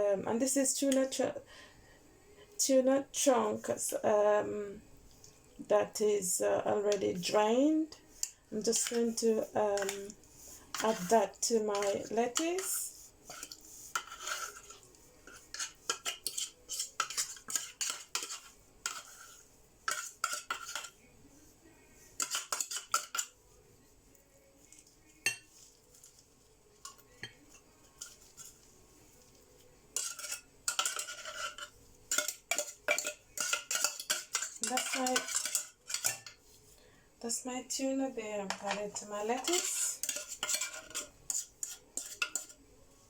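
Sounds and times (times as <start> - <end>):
metal utensil scraping a dish: 8.2 - 21.0, 22.2 - 23.4, 26.8 - 28.7, 29.9 - 36.5, 38.5 - 42.6.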